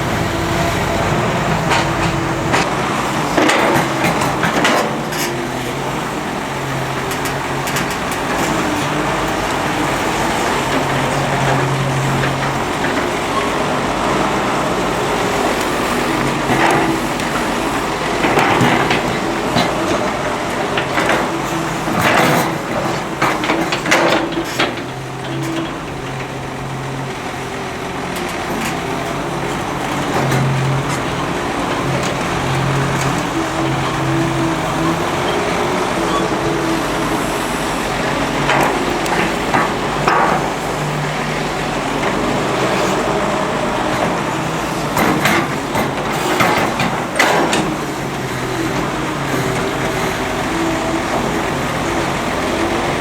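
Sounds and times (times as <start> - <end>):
metallic clanks and knocks: 0.0 - 2.7, 18.2 - 26.4, 38.4 - 40.8, 44.9 - 50.0
diesel excavator engine running: 0.0 - 53.0.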